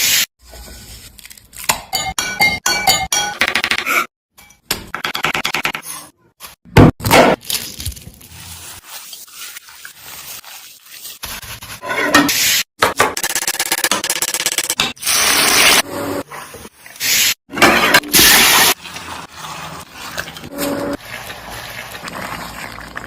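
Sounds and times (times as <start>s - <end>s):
utensil scraping in a pot: 8.4s - 12.7s.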